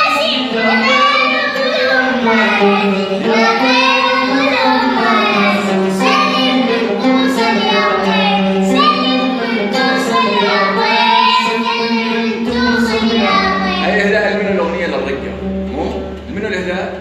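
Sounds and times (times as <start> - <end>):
boy singing: 0.0 - 14.4
held low drone note: 12.5 - 17.0.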